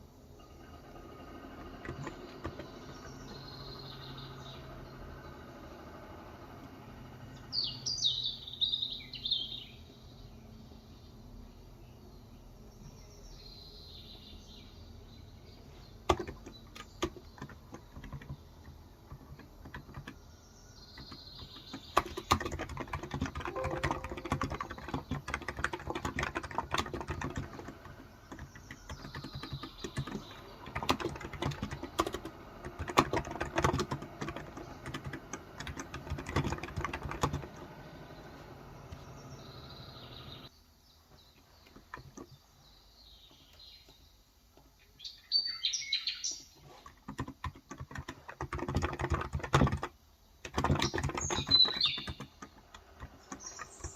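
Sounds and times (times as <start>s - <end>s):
keyboard typing: 0.7s - 3.5s, 16.0s - 37.8s, 46.8s - 53.9s
bird chirping: 1.9s - 5.4s, 7.3s - 32.3s, 35.7s - 46.8s, 50.3s - 53.9s.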